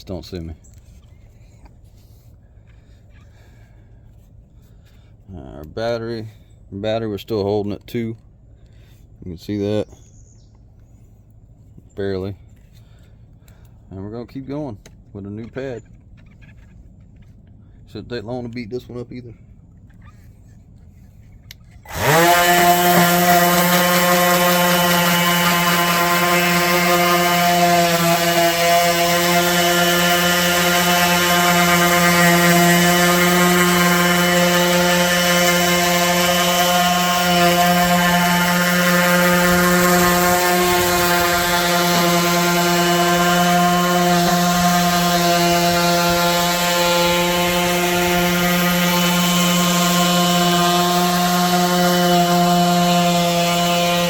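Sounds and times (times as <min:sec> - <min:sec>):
orbital sander sanding wood: 0:21.9 - 0:54.0.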